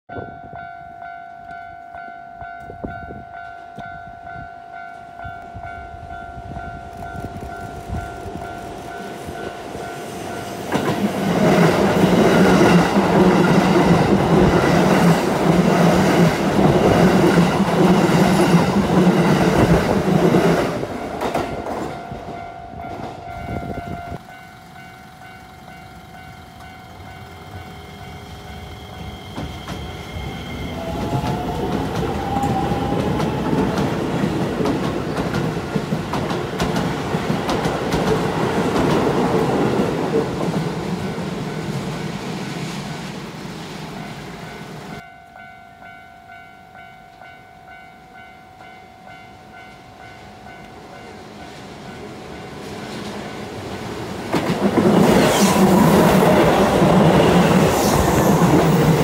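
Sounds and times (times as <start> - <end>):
train wheels on rails: 1.3 - 45.1, 49.4 - 59.0
level-crossing alarm ringing: 20.9 - 34.5.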